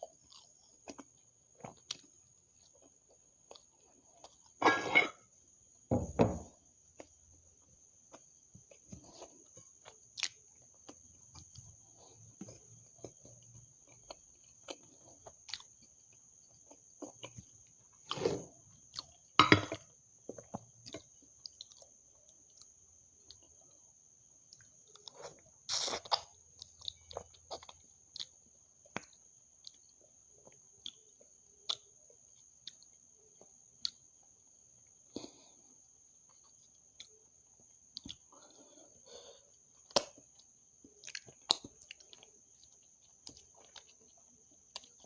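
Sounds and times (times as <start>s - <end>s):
chewing food: 0.0s - 4.6s, 6.5s - 45.0s.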